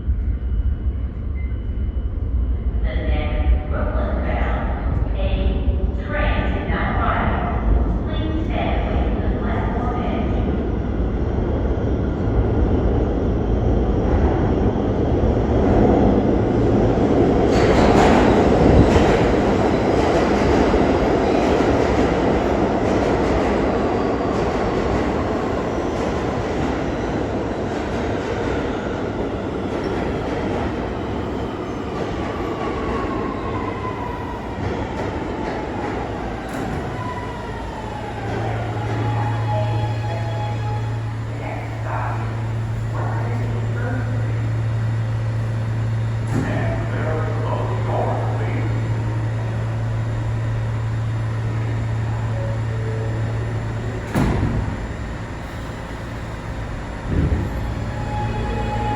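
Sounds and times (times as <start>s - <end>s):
subway train wheels rumbling: 0.0s - 58.9s.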